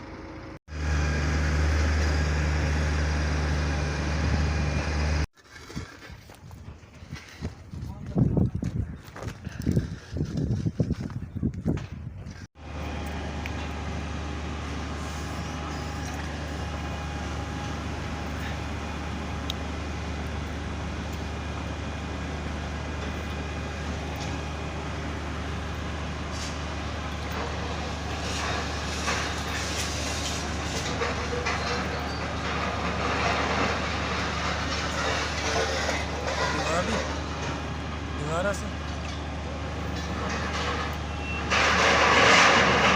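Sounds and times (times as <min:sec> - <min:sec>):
diesel engine under load: 0:00.0 - 0:05.9, 0:12.0 - 0:42.9
work clattering: 0:26.3 - 0:42.9.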